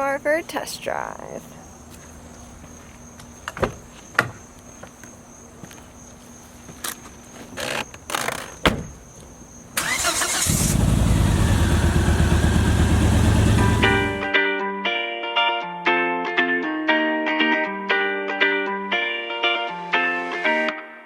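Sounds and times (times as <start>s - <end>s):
car starter cranking: 9.8s - 14.2s
car engine running: 9.9s - 14.3s.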